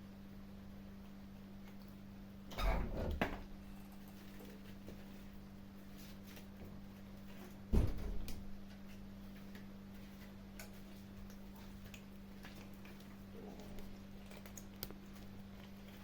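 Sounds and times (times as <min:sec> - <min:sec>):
loud dull thump: 0:07.7 - 0:08.3
kittens chewing food: 0:08.7 - 0:16.0.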